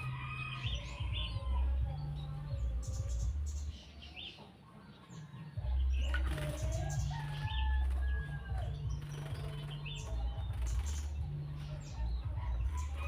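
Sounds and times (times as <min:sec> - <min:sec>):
bird chirping: 0:00.0 - 0:13.0
bird wings fluttering: 0:06.1 - 0:11.2.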